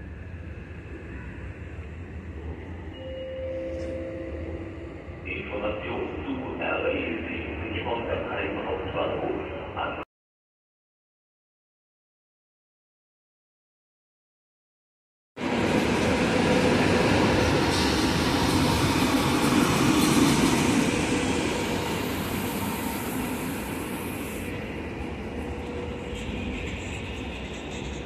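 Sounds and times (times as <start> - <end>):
train wheels rumbling: 15.4 - 28.0.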